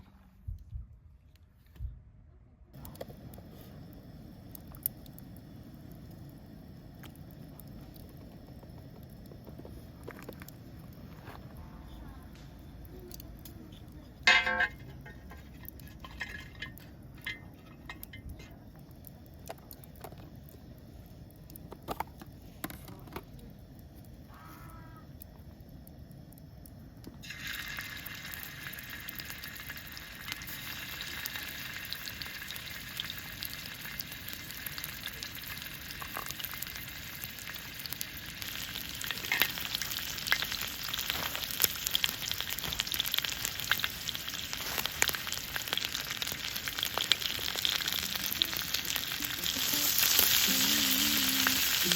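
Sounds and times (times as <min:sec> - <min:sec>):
food sizzling in a pan: 0:12.7 - 0:18.4, 0:27.2 - 0:51.9.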